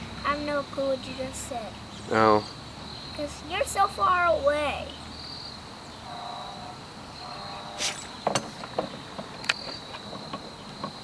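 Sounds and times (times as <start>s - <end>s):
crickets trilling: 0.0s - 11.0s
rustle: 0.0s - 11.0s.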